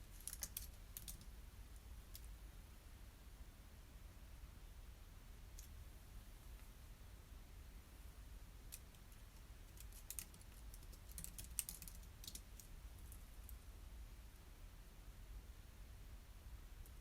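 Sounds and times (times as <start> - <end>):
low room hum: 0.0 - 17.0
typing on computer keyboard: 9.8 - 12.7.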